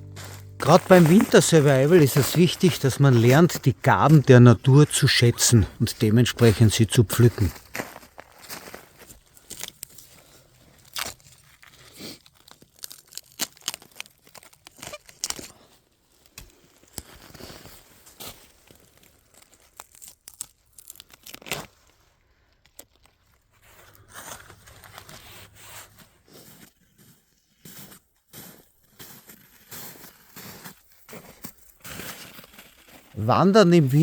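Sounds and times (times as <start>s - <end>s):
plant material tearing and snapping: 10.8s - 15.5s, 19.0s - 23.4s.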